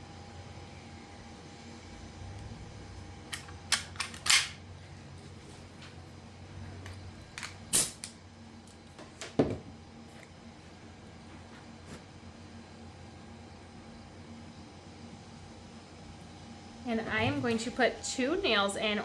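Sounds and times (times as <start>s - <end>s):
pin nailer firing snaps: 3.3s - 4.6s.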